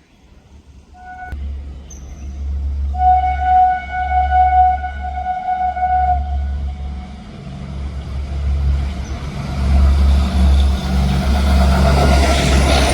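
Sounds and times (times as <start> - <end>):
horn note: 1.0 - 1.5, 2.9 - 7.4
diesel engine humming: 1.0 - 12.9.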